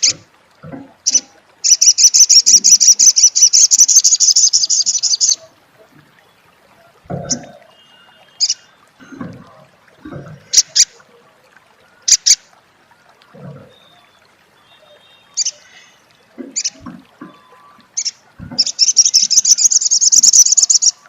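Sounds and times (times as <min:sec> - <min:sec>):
bird chattering calls: 0:01.1 - 0:05.4, 0:16.6 - 0:20.9.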